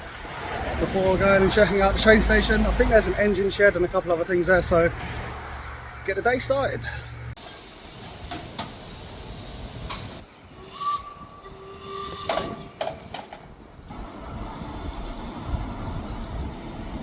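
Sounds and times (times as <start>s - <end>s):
steam locomotive hissing: 7.4s - 11.0s.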